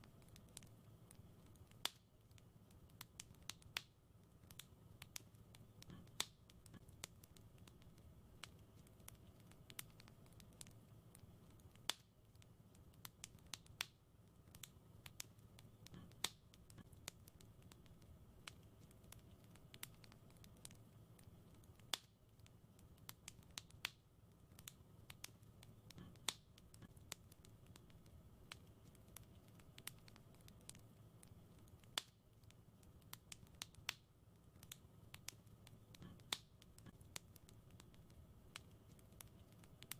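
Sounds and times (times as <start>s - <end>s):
faint low rumble: 0.0s - 39.9s
wood fire crackling: 0.0s - 39.9s.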